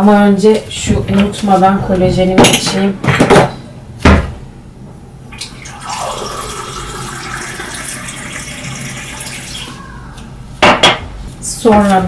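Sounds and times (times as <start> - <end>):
water pouring into a glass: 5.4 - 9.6.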